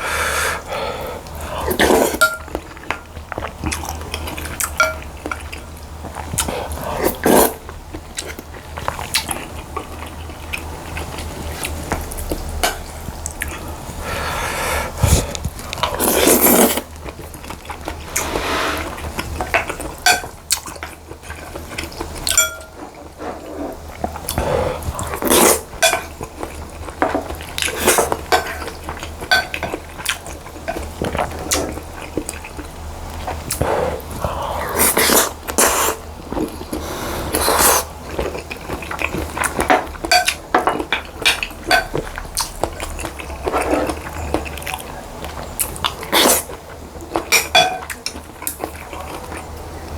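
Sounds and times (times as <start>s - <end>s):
chewing: 0.7s - 49.9s
utensils clinking against bowl: 1.7s - 3.0s, 4.2s - 5.6s, 19.1s - 23.1s, 25.0s - 31.2s, 37.6s - 44.7s, 47.1s - 49.2s.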